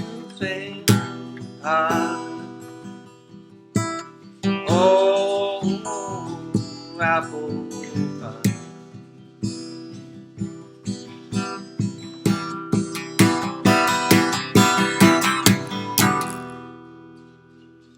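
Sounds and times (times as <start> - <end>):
strummed acoustic guitar: 0.0 - 17.9.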